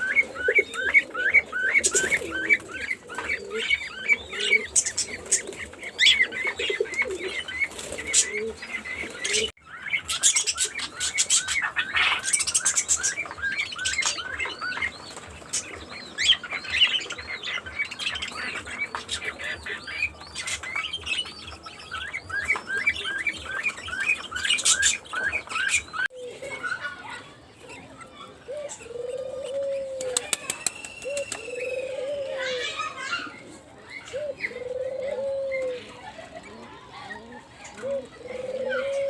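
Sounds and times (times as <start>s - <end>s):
budgerigars chirping: 0.0s - 26.1s.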